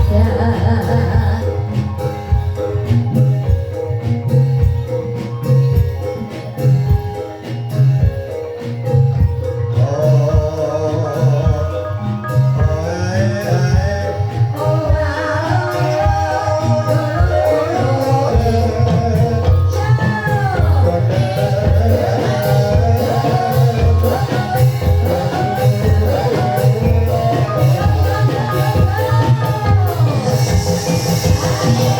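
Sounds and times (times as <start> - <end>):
person singing ornamented vocals: 0.0 - 2.0, 9.8 - 31.9
drum strokes: 0.0 - 31.9
mallet percussion: 0.0 - 31.9.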